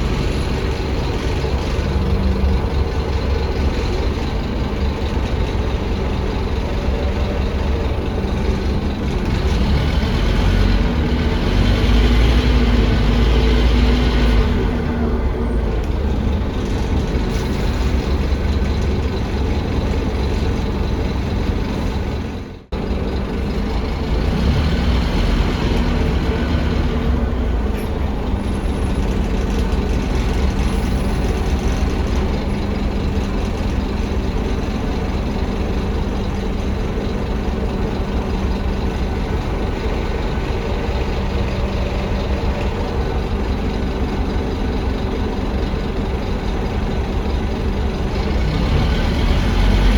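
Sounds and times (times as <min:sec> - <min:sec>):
bus diesel engine drone: 0:00.0 - 0:49.9.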